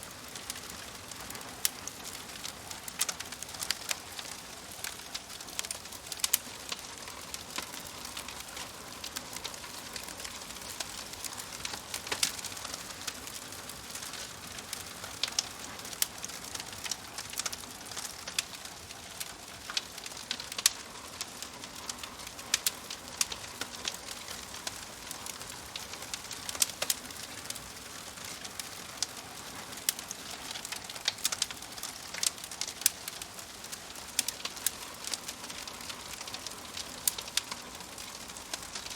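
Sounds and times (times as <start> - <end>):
burning wood crackling: 0.0 - 38.9.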